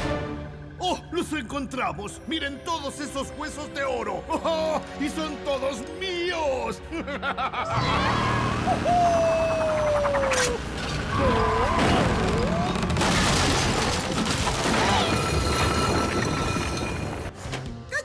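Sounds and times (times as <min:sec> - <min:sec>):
wavering cries: 0:07.6 - 0:13.0
loud rumbling and clattering: 0:08.4 - 0:17.4
sharp crashes: 0:10.9 - 0:17.3.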